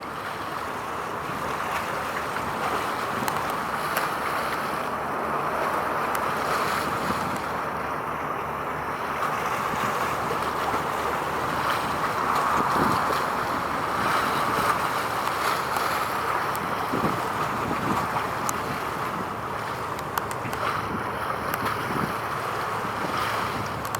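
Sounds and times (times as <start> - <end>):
wind on microphone: 9.6 - 23.9.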